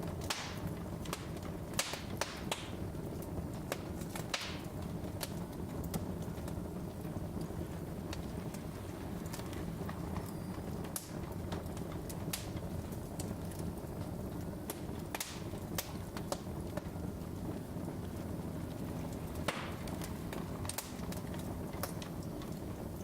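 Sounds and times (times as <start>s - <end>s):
log fire crackling: 0.0s - 23.0s
low rush of flames: 0.0s - 23.0s.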